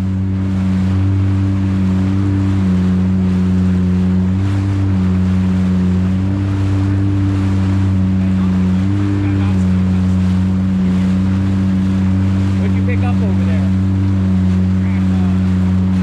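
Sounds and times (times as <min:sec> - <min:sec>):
jet ski engine running: 0:00.0 - 0:16.0
wind: 0:00.0 - 0:16.0.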